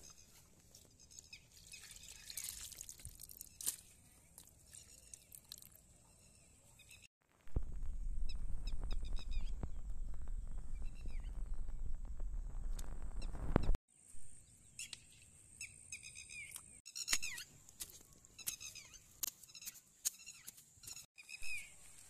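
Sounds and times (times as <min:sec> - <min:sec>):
small birds chirping: 0:00.0 - 0:07.1, 0:10.5 - 0:11.6, 0:13.2 - 0:22.0
water dripping into pool: 0:04.4 - 0:05.8
low steady rumble: 0:07.5 - 0:13.8.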